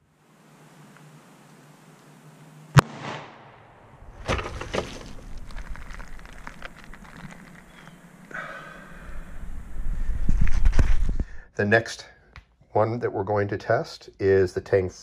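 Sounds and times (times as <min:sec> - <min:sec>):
pistol shot: 0:02.7 - 0:03.9
rustling and knocking: 0:04.1 - 0:07.7.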